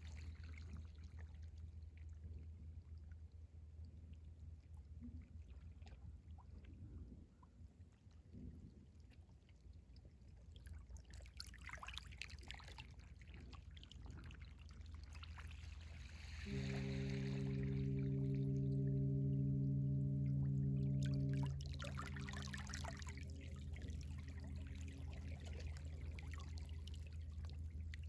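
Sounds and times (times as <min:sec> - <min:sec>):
small waves lapping: 0:11.1 - 0:18.6
wash of water: 0:15.3 - 0:28.0
low rumble: 0:16.4 - 0:28.0.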